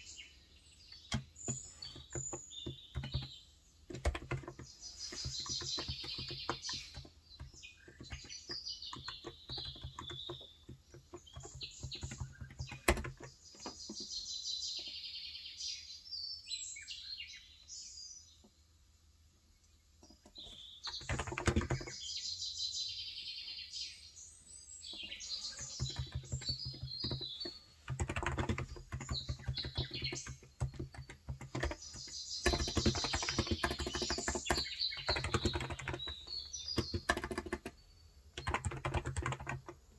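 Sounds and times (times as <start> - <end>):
birds chirping: 0.0 - 18.7, 19.5 - 39.9
soft keyboard typing: 0.9 - 14.2, 20.0 - 22.1, 24.9 - 39.9.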